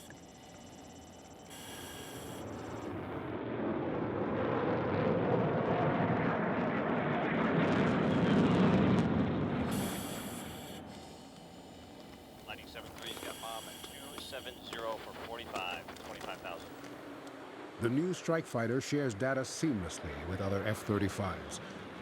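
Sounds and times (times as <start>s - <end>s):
jet fighter roar: 1.5s - 22.0s
brief electronic tone: 9.8s - 16.8s.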